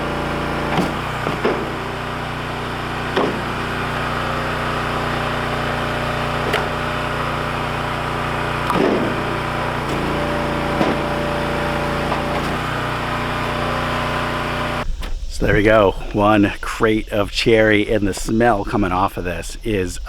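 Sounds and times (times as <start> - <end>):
engine running: 0.0 - 15.7
firewood dropped knocking: 0.6 - 7.6, 8.6 - 13.6.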